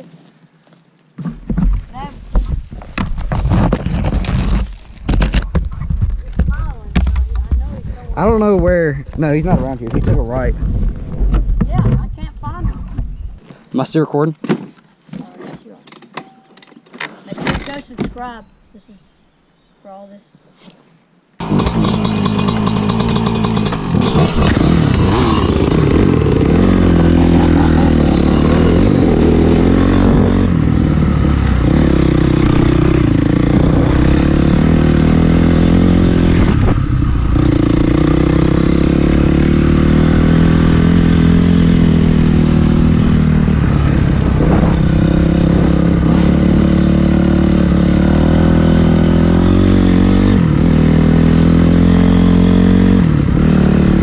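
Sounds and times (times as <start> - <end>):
dirt bike engine revving: 21.4 - 54.0.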